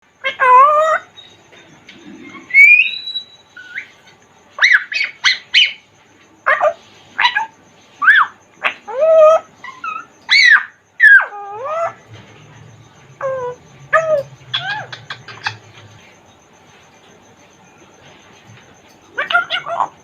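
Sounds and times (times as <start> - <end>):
parrot calls: 0.2 - 16.4, 19.1 - 20.0
parrot rising whistle: 2.1 - 3.9, 9.0 - 16.0.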